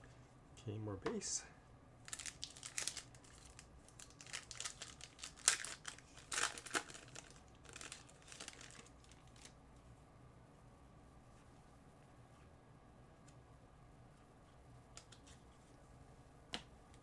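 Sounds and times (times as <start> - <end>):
crinkling card pack wrappers: 2.0 - 9.6.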